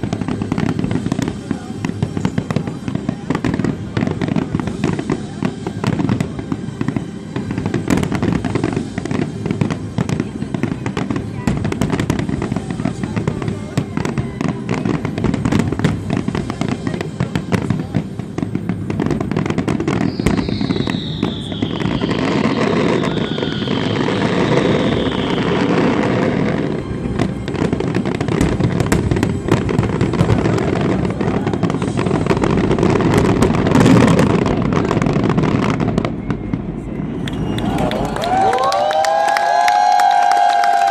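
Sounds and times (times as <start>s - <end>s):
fireworks bangs and crackling: 0.0s - 40.9s
falling firework whistle: 18.4s - 40.9s.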